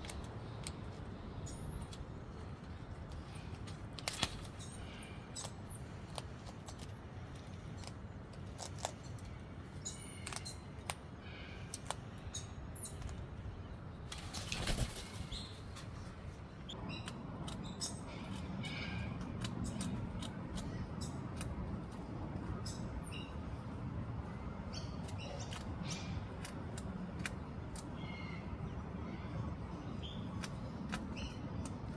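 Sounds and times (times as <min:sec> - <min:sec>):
cockatoo crunching cookies: 0:05.2 - 0:09.4
wings flapping: 0:14.1 - 0:16.0.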